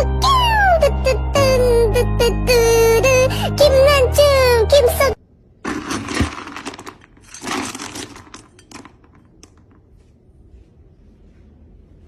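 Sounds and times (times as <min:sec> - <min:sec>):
faint room noise: 0:05.2 - 0:12.0.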